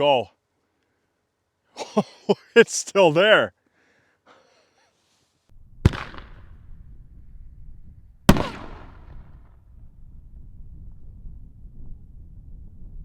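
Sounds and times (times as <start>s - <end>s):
low outdoor background: 0.0s - 13.0s
firework bangs with rumble: 5.8s - 6.5s.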